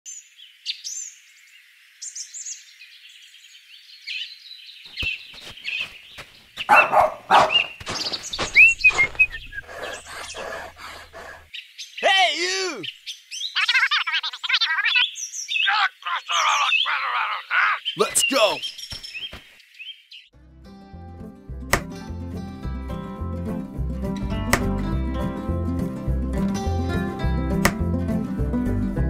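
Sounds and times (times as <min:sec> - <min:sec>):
birds chirping: 0:02.0 - 0:20.4
squeaky cartoon sound effects: 0:13.6 - 0:15.1.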